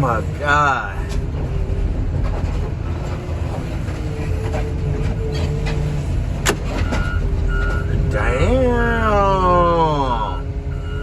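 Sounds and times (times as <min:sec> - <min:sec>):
heavy diesel machinery rumbling: 0:00.0 - 0:11.0.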